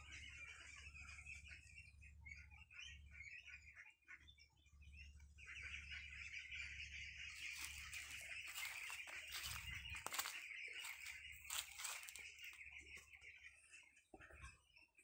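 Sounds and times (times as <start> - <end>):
birds chattering: 0.0 - 15.0
dry leaves and twigs crackling: 7.3 - 13.1.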